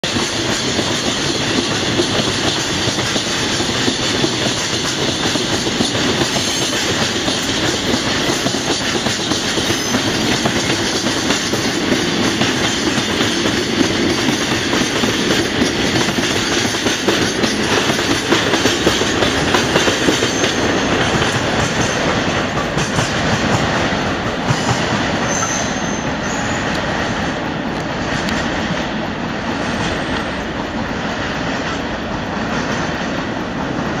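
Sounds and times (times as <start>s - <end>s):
train wheels clattering over rails: 0.0s - 34.0s
high squeal: 25.2s - 26.8s.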